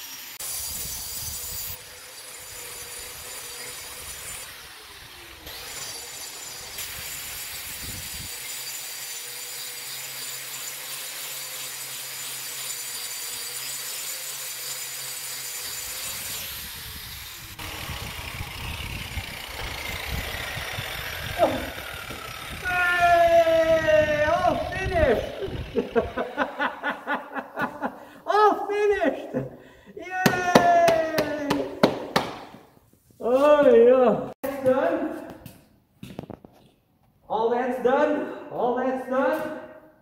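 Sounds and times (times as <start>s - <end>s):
angle grinder grinding concrete: 0.0s - 27.8s.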